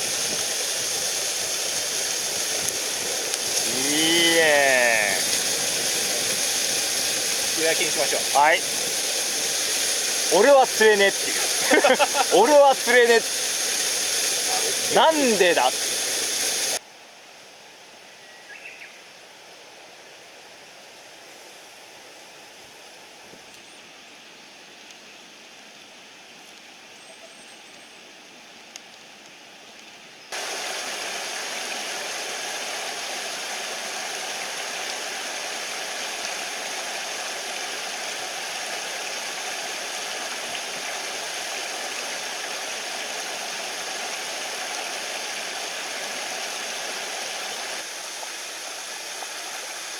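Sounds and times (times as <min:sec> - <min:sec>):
mountain stream rushing: 0:00.0 - 0:16.8, 0:30.3 - 0:49.9.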